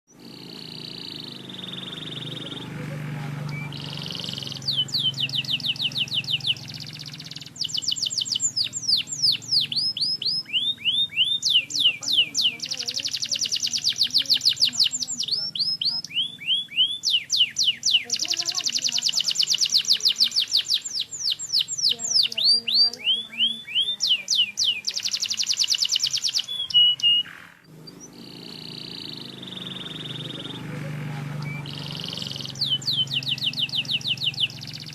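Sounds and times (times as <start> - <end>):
canary singing trills: 0.1 - 34.9
steady low hum: 27.6 - 34.9.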